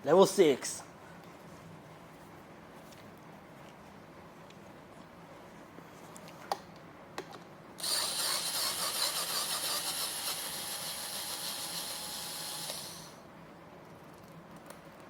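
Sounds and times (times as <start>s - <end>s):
cordless drill driving a screw: 7.8s - 13.2s.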